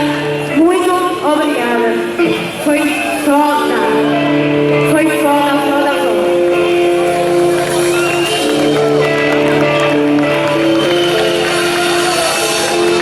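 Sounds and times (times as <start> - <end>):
rock band playing held chords: 3.6 - 13.0.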